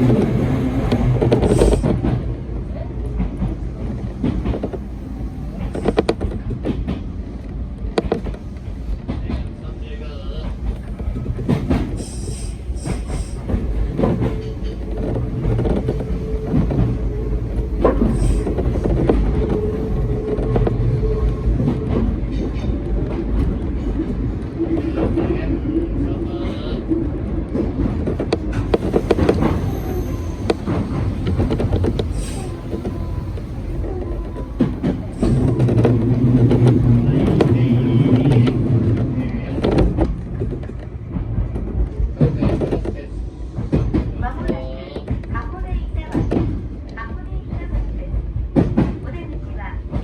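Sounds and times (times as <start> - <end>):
train wheels rumbling on rail: 0.0 - 50.0
wheels clicking over rails: 27.9 - 41.6.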